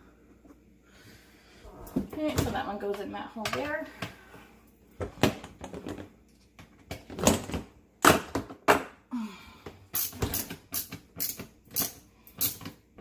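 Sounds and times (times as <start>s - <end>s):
screwdriver ratchet clicking: 10.0s - 12.7s.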